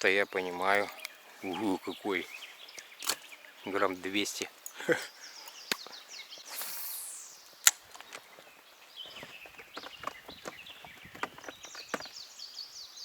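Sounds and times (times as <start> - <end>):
small birds chirping: 0.0 - 13.0
tackle clicks and knocks: 9.1 - 12.1.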